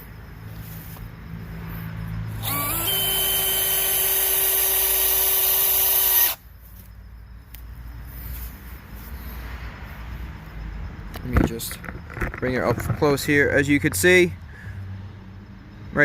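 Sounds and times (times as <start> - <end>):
cordless drill motor whine: 2.3 - 6.4.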